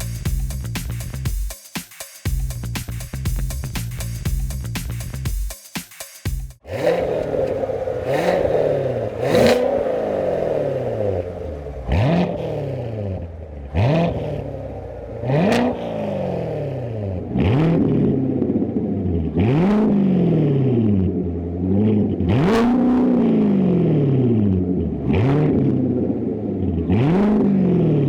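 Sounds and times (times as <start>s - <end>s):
car engine revving: 6.6s - 28.0s.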